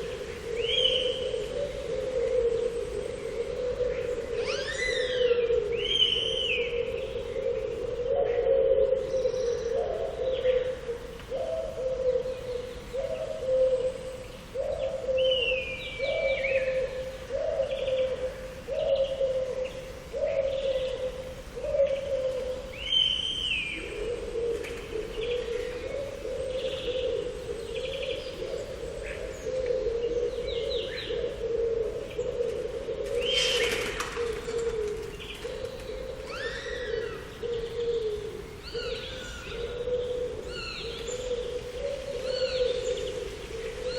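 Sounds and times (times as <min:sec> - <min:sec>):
low bird call warbling: 0:02.6 - 0:07.2, 0:35.2 - 0:43.9.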